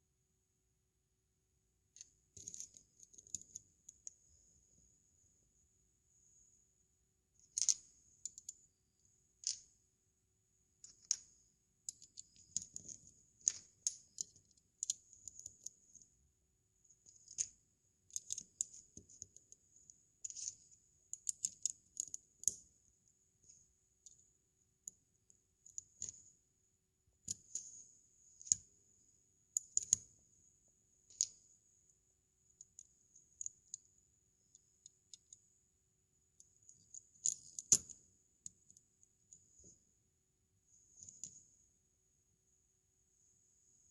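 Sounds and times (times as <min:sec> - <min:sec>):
plastic bricks clicking together: 0:02.0 - 0:03.6, 0:07.4 - 0:08.6, 0:11.9 - 0:15.7, 0:17.1 - 0:19.4, 0:20.2 - 0:22.6, 0:29.6 - 0:30.0, 0:36.7 - 0:38.0.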